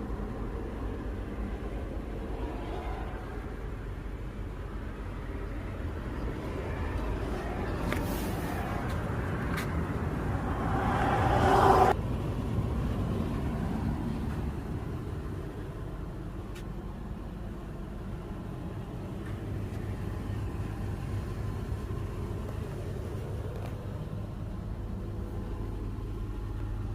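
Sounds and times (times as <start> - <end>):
car engine rumbling: 0.0 - 26.9
loud rushing noise: 8.1 - 12.0.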